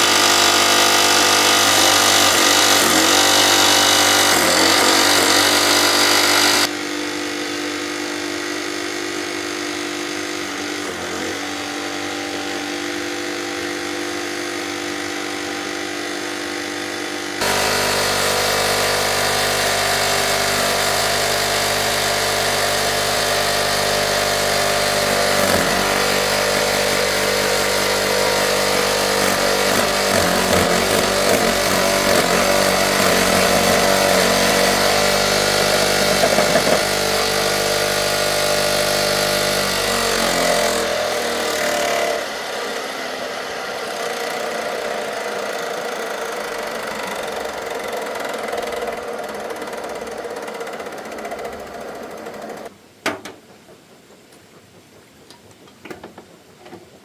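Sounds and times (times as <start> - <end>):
engine running steadily: 15.0 - 39.8.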